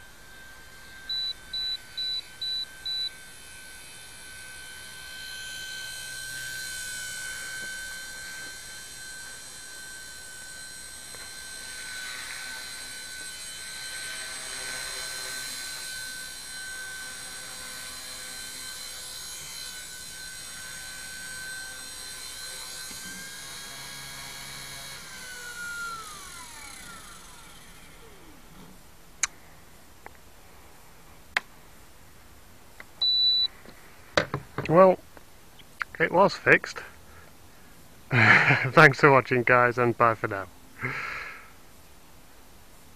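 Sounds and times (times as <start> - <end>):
rc helicopter motor whine: 0.0 - 28.8, 38.1 - 38.8.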